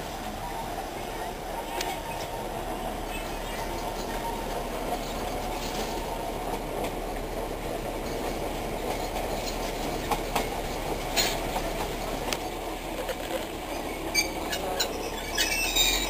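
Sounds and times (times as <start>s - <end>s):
train coaches rumbling: 0.0s - 16.0s
wheels clicking over rails: 1.6s - 16.0s.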